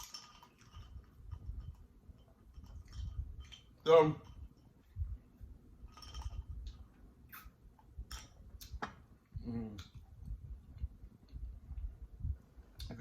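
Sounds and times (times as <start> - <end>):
closed-mouth mm: 7.2 - 7.6.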